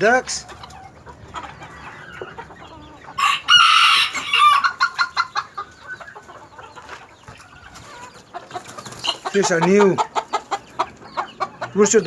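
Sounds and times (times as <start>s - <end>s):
chickens clucking: 0.0s - 12.0s
rooster crowing: 3.2s - 5.1s.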